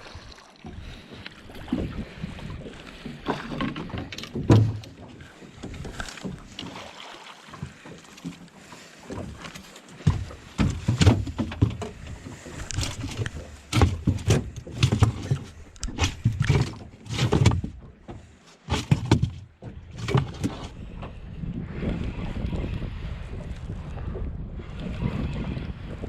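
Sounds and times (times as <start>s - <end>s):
knocks and thumps in a boat: 0.0s - 26.0s
wind on microphone: 19.8s - 26.0s.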